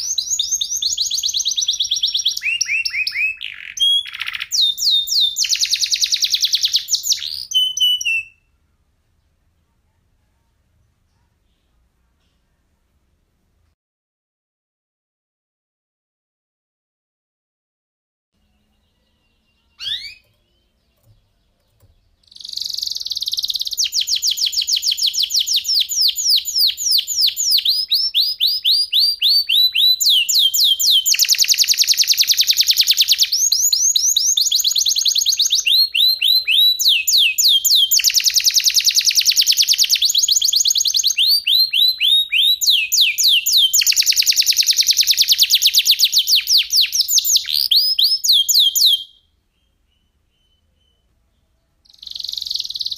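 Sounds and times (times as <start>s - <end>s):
canary singing rapid trills: 0.0s - 8.5s, 18.4s - 51.1s, 51.8s - 52.9s.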